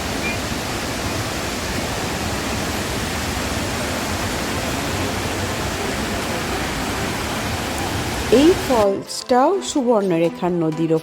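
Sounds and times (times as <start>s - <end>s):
waterfall rushing into pool: 0.0s - 8.9s.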